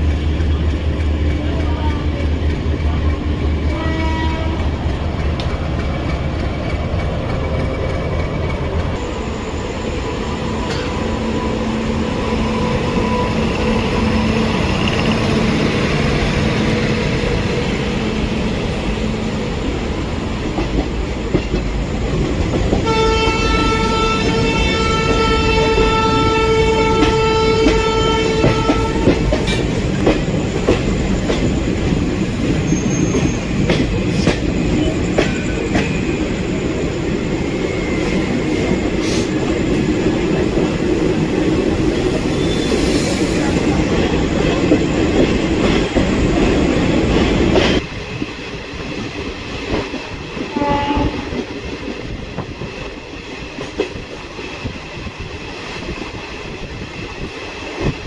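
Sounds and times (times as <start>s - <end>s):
train rumbling: 0.0s - 58.0s
train horn: 3.6s - 4.8s, 9.0s - 15.5s, 22.8s - 29.5s, 50.5s - 51.5s.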